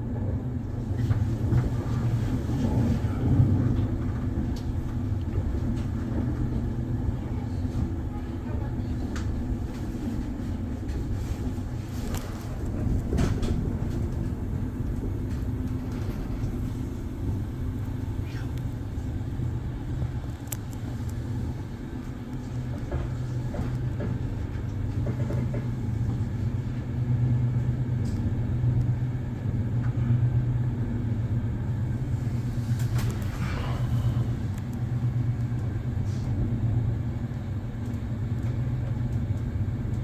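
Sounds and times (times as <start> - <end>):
train rumbling inside carriage: 0.0 - 40.0
faint clicks and rattles: 11.9 - 21.4.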